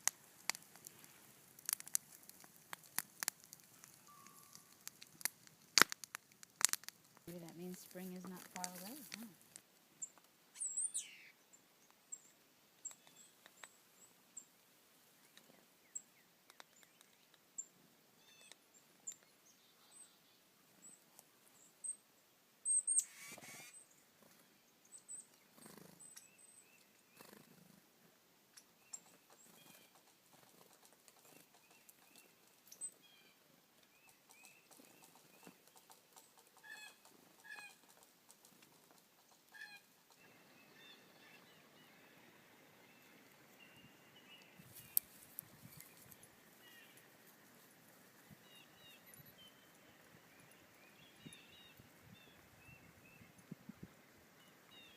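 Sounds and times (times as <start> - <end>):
birds chirping: 7.3 - 9.4, 10.0 - 14.5, 28.5 - 47.6, 48.2 - 53.4.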